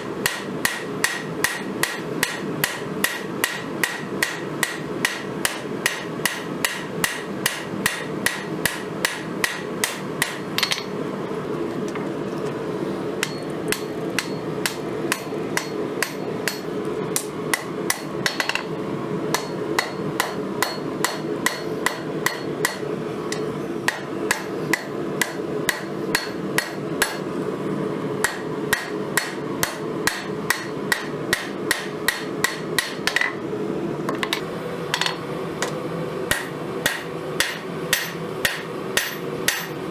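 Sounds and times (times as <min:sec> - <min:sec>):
steady hum: 0:00.0 - 0:39.9
hammer ringing on anvil: 0:00.2 - 0:11.0, 0:13.2 - 0:18.7, 0:19.3 - 0:27.3, 0:36.3 - 0:39.8.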